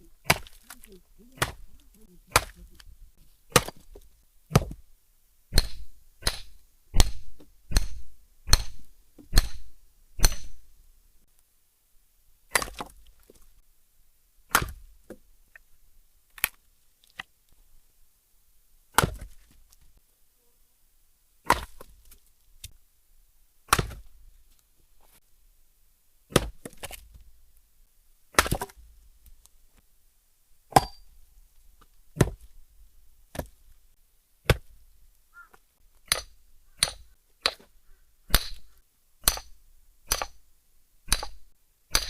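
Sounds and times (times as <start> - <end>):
axe strikes splitting firewood: 0.2 - 0.8, 1.4 - 1.7, 2.3 - 2.8, 3.5 - 4.8, 5.5 - 10.6, 12.5 - 13.0, 14.5 - 14.9, 18.9 - 19.4, 21.4 - 22.0, 23.7 - 24.1, 26.3 - 27.0, 28.3 - 28.8, 30.7 - 31.0, 32.2 - 32.5, 33.3 - 33.6, 34.4 - 34.8, 36.0 - 37.7, 38.3 - 40.4, 41.1 - 42.0.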